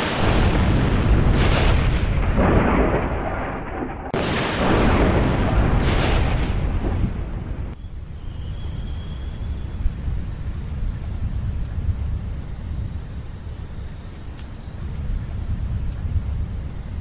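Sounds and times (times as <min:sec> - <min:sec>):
sharp thunder crack: 0:00.0 - 0:07.8
thunder rumbling: 0:00.0 - 0:17.0.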